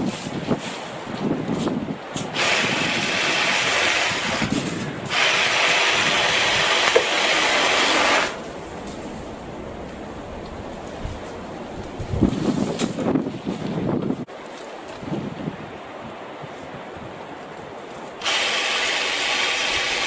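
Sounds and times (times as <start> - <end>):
cordless saw running: 2.4 - 4.5, 5.1 - 8.4, 18.2 - 20.0.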